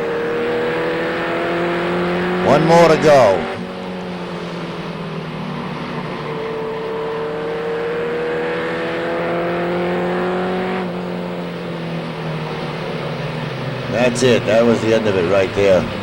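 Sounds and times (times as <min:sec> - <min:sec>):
race truck engines at speed: 0:00.0 - 0:16.0.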